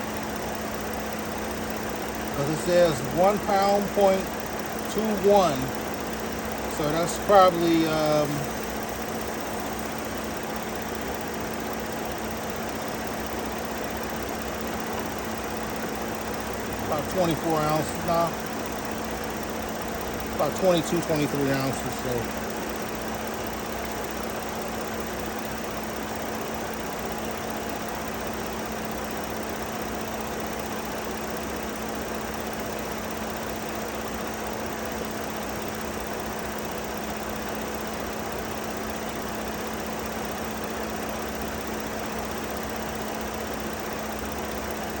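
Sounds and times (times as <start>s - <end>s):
air conditioning hum: 0.0s - 24.1s
car engine idling: 0.0s - 45.0s.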